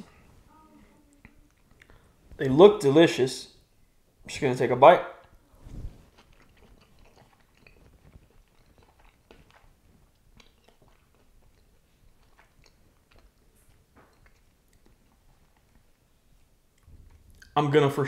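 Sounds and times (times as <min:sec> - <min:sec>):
faint chewing with soft crunches: 0:00.0 - 0:02.5, 0:05.1 - 0:17.7.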